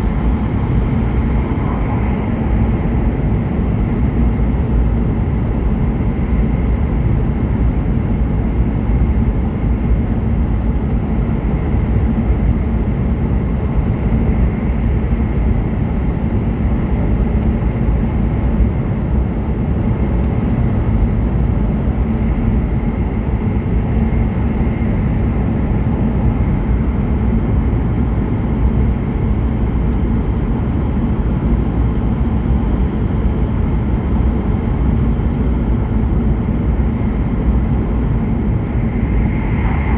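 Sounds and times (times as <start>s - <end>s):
train wheels rumbling on track: 0.0s - 4.6s, 29.1s - 39.9s.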